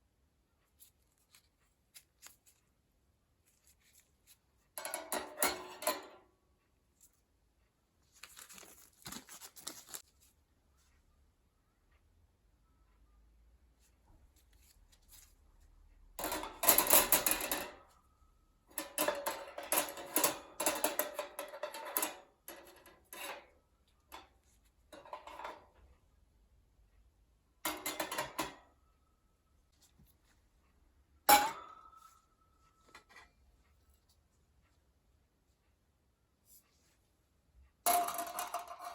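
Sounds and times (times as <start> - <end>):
metallic clang: 16.2 - 17.9, 31.3 - 32.4.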